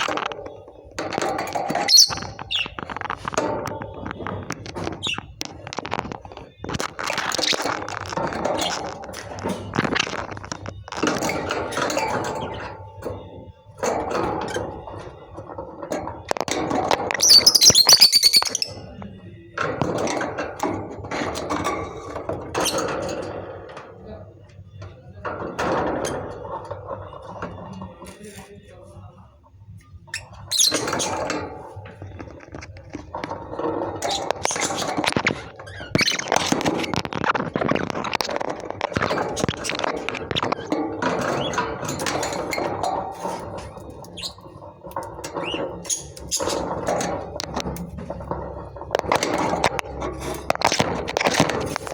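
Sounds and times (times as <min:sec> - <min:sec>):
lovebirds chirping: 0:01.8 - 0:02.9, 0:17.2 - 0:18.8.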